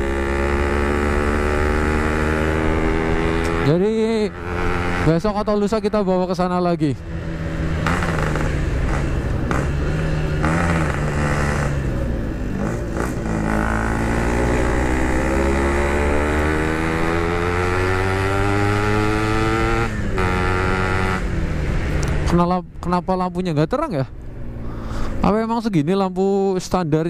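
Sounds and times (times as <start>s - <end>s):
two-stroke motorcycle accelerating: 0.0s - 26.9s.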